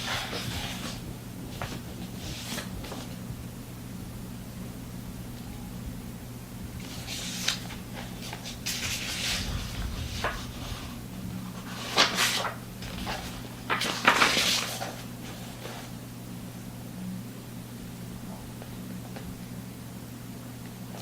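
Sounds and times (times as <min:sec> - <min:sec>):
rustling handling noises: 0:00.0 - 0:03.2, 0:06.8 - 0:16.0
steady low hum: 0:00.0 - 0:21.0.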